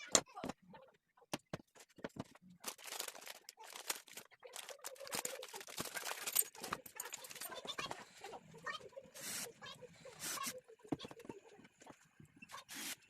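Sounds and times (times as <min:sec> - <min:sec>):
thin sheet crackling and crinkling: 0:01.8 - 0:09.5.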